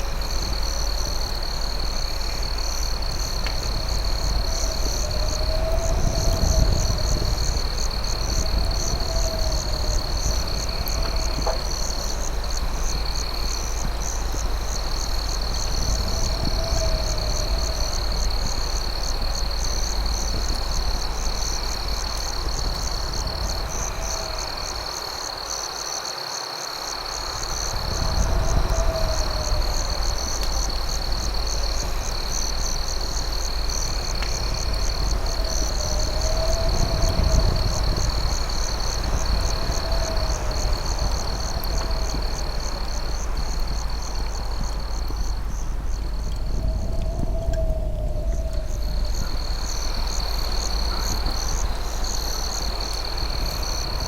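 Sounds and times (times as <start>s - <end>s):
crickets trilling: 0.0s - 54.0s
faint campfire crackles: 0.0s - 54.0s
pulsing insect chirp: 0.0s - 54.0s
low rumble: 27.5s - 54.0s.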